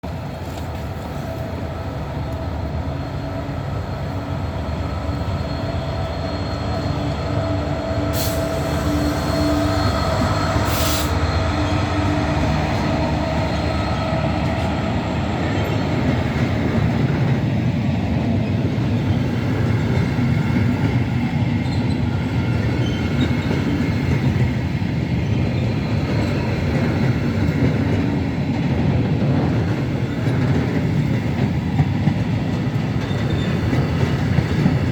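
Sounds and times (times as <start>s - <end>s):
wagons rumbling along rails: 0.0s - 34.9s
locomotive engine drone: 0.2s - 17.1s
short high hisses: 10.6s - 11.2s.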